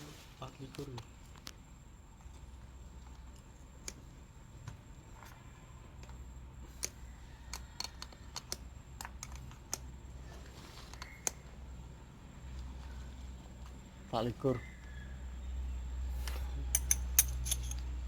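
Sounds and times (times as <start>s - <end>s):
hand tools clinking on metal: 16.2s - 17.9s.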